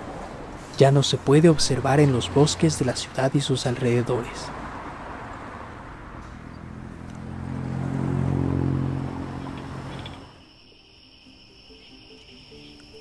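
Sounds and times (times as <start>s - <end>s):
motor vehicle driving past: 3.9s - 10.5s.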